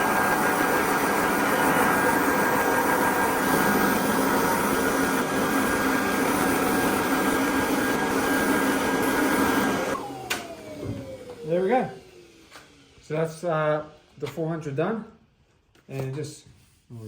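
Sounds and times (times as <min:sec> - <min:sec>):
electric sander running: 0:00.0 - 0:13.0.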